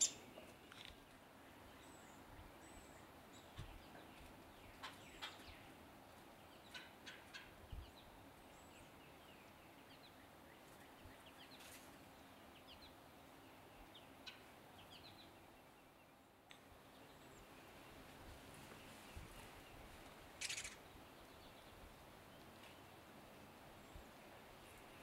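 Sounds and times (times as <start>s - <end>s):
wild bird chirps: 0.0s - 0.3s, 20.4s - 20.9s.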